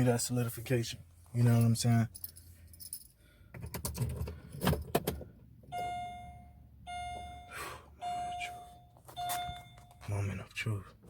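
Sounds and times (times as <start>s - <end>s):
car keys jangling: 1.4s - 6.3s, 8.4s - 10.7s
car warning chime: 5.7s - 10.7s.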